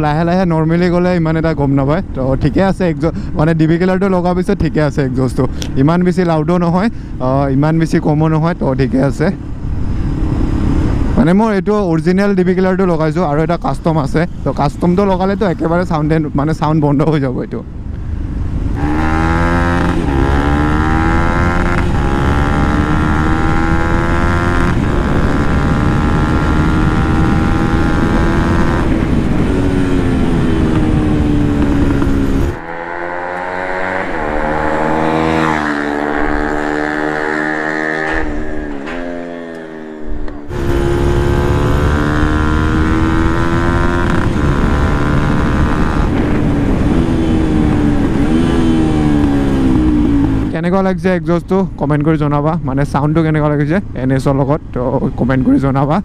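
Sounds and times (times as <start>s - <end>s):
motorcycle engine revving: 18.2s - 50.6s.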